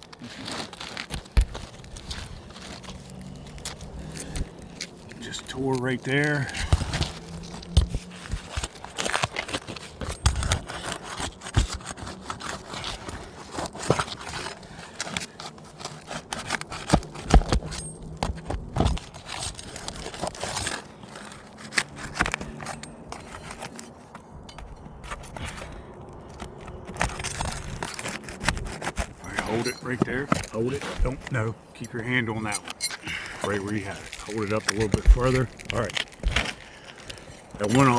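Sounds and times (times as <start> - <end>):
roof shingles scraping and crackling: 0.0 - 37.9.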